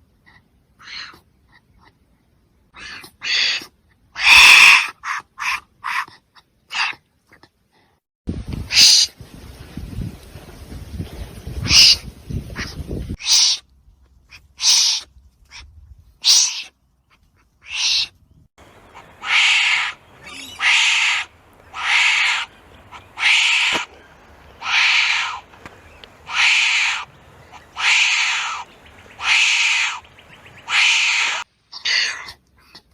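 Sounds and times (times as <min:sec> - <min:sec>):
wombat harsh breathy calls: 0:02.8 - 0:07.0, 0:26.3 - 0:30.0, 0:30.7 - 0:32.8.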